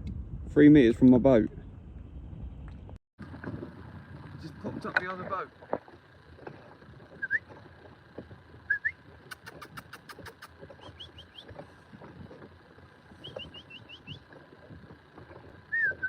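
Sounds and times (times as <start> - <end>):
bird rising chirps: 10.8 - 11.5, 13.1 - 14.3.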